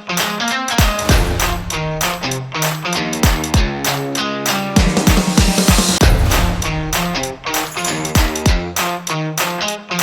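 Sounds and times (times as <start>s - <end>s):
guitar-led instrumental music: 0.0s - 10.0s.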